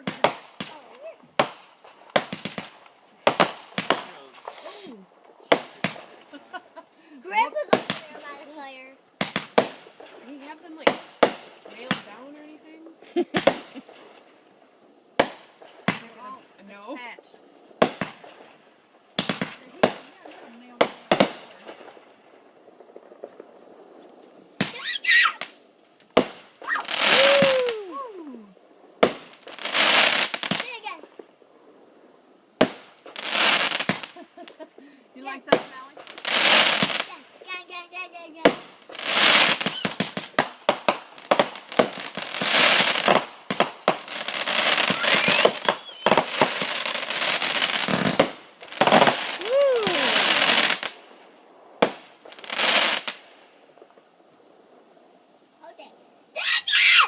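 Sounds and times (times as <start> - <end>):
firework whistling: 0.0 - 8.6, 24.6 - 30.9, 32.6 - 51.0, 56.4 - 57.0
loud firework hiss: 0.0 - 14.4, 17.4 - 54.1
firework bangs: 0.0 - 54.1.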